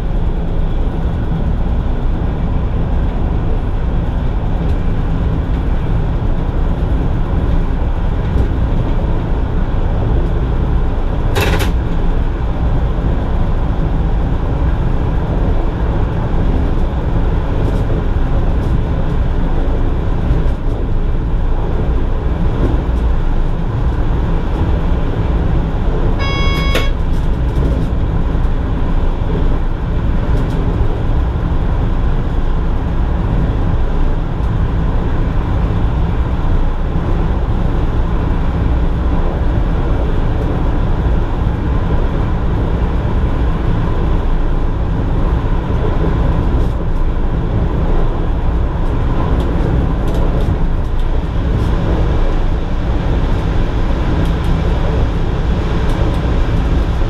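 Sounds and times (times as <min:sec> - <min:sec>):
train wheels rumbling on rails: 0:00.0 - 0:57.0
short beep: 0:26.2 - 0:27.1.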